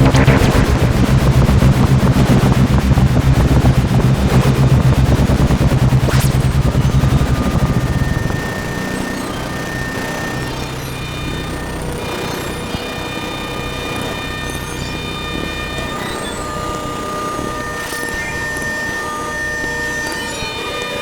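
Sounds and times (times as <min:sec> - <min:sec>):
thin high synth tones: 0:00.0 - 0:02.1
rising noise swells: 0:00.0 - 0:08.4
synthesizer drone pulsing: 0:00.0 - 0:08.9.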